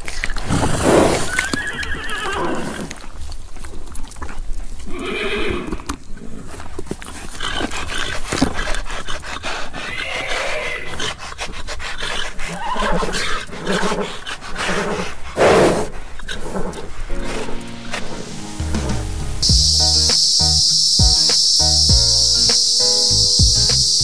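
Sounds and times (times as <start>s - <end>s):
horses neighing: 0.4s - 3.0s, 4.9s - 6.6s, 9.7s - 11.1s.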